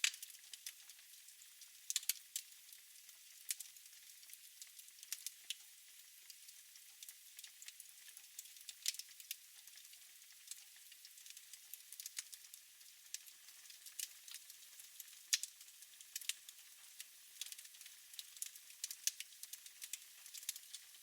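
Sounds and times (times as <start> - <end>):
wood fire crackling: 0.0 - 0.6, 1.9 - 2.5, 3.4 - 3.6, 11.2 - 12.3, 13.1 - 21.0.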